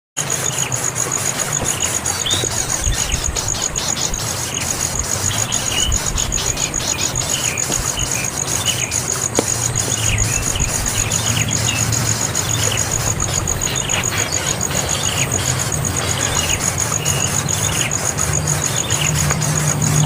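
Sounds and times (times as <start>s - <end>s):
bird chirping: 0.2s - 20.0s
high insect trill: 0.2s - 20.0s
low hum: 0.6s - 20.0s.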